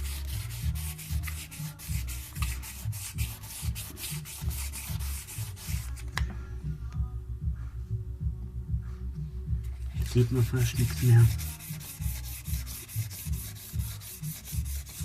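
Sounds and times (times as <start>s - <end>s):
sandpaper rubbing on filler: 0.0s - 6.0s, 10.1s - 15.0s.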